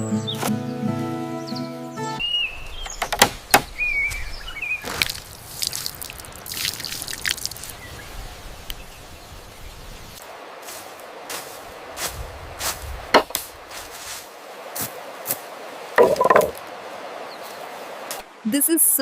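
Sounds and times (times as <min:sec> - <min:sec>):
bird chirping: 0:01.4 - 0:04.9.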